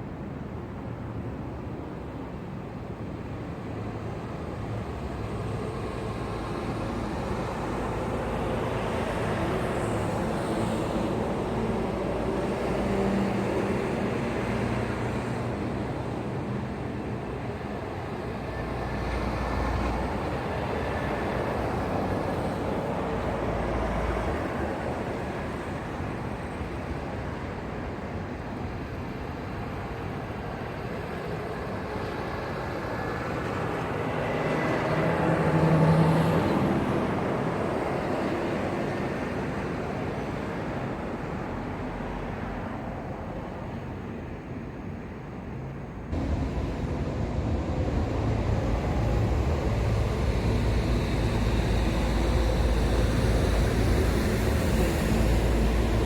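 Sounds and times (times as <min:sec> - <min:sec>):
highway traffic passing: 0:04.9 - 0:27.1, 0:32.6 - 0:56.0
heavy vehicle passing: 0:46.1 - 0:56.0.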